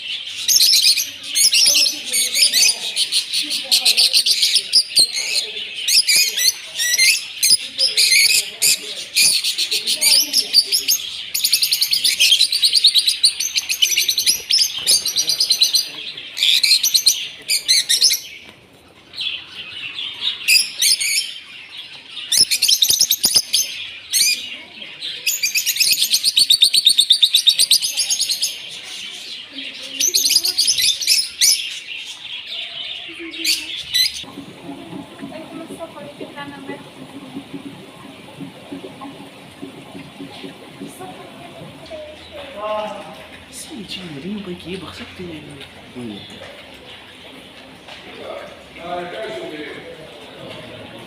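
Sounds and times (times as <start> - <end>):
small birds chirping: 0.0 - 48.8.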